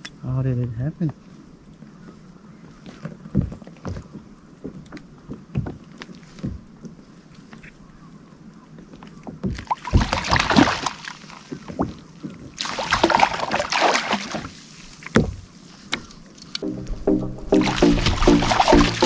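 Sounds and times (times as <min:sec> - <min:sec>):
rustling splashy knocking: 0:17.5 - 0:19.0.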